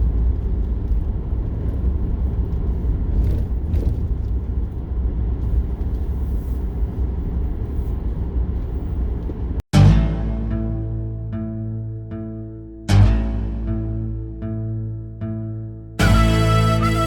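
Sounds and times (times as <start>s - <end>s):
vehicle road noise from inside: 0.0s - 9.6s.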